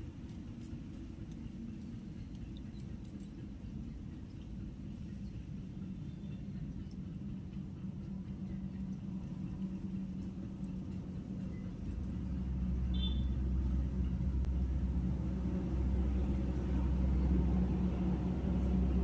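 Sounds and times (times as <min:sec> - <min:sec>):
vehicle engine rumbling: 0:00.0 - 0:19.0
bird chirp: 0:12.9 - 0:13.4.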